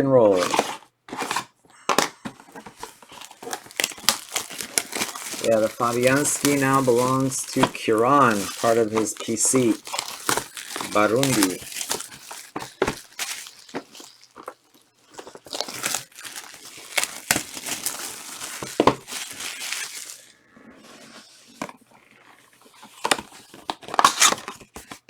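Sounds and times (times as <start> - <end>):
cards tapping and sliding: 0.3 - 14.6, 16.8 - 20.2
foil wrappers crinkling: 0.3 - 20.4, 21.4 - 25.0.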